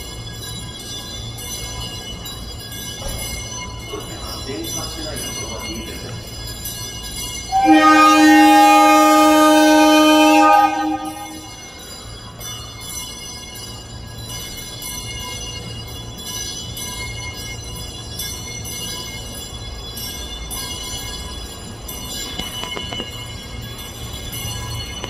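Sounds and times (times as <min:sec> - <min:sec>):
high ringing tones: 0:00.0 - 0:25.0
train low rumble: 0:00.0 - 0:25.0.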